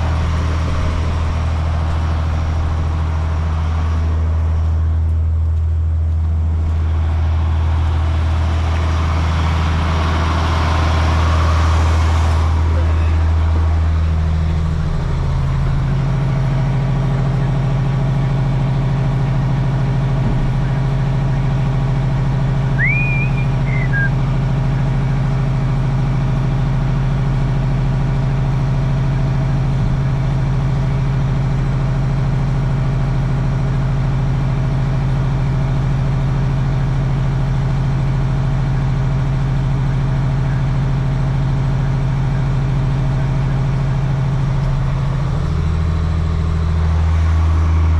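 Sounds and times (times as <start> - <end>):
diesel truck engine idling: 0.0 - 47.9
high chirp: 22.8 - 24.2.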